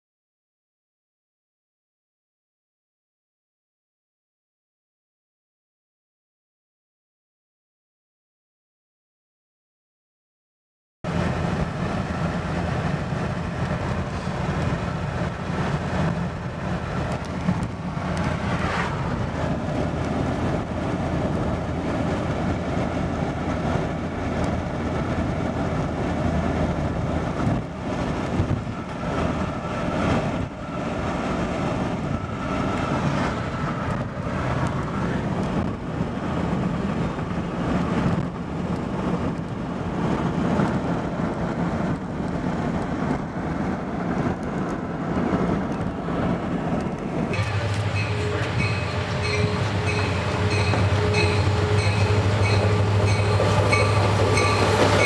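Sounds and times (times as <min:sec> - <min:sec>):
diesel locomotive engine running: 0:11.1 - 0:55.0
train clattering on rails: 0:11.1 - 0:55.0.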